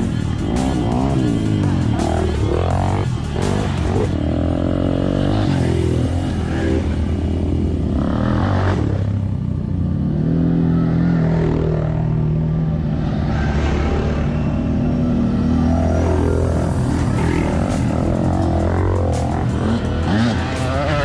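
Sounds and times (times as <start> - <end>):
motorbike engines revving: 0.0 - 21.0.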